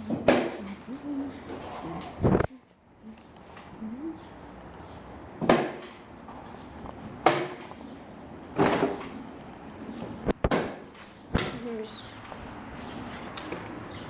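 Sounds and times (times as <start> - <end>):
sharp knocks: 5.4 - 6.0, 7.2 - 7.8, 10.4 - 11.6.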